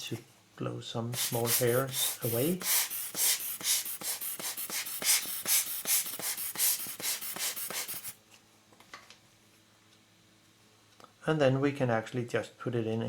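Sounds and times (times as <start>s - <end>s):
puffs of air blowing: 1.1s - 8.2s.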